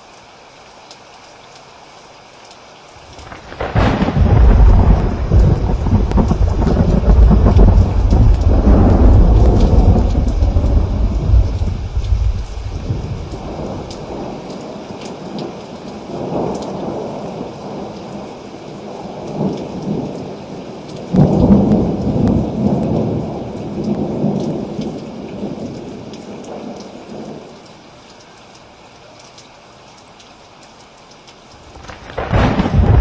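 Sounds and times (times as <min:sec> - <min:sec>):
steady rain: 0:00.0 - 0:33.0
rolling thunder: 0:03.2 - 0:14.4, 0:21.1 - 0:27.3, 0:31.7 - 0:33.0.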